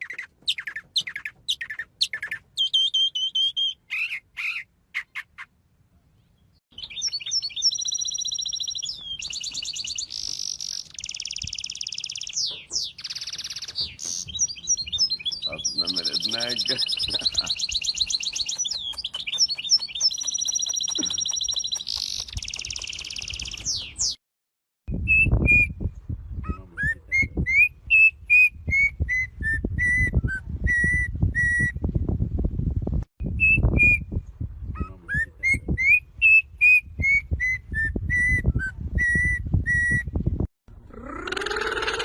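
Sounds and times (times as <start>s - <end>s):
songbird singing whistled notes: 0.0s - 5.3s, 6.3s - 24.2s, 24.9s - 31.8s, 33.2s - 40.3s
high rapid bird trill: 6.7s - 24.2s.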